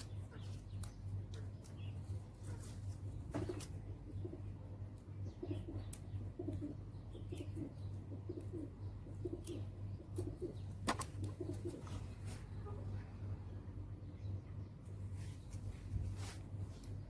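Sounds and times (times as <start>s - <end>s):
steady low hum: 0.0s - 17.0s
dove cooing: 5.4s - 12.1s.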